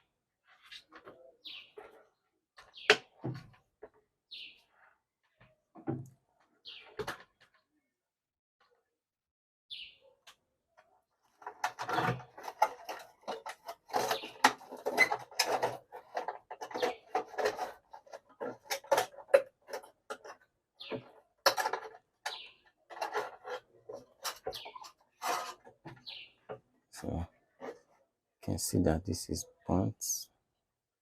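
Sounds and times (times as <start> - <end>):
hands handling hot plate parts: 21.0 - 26.6.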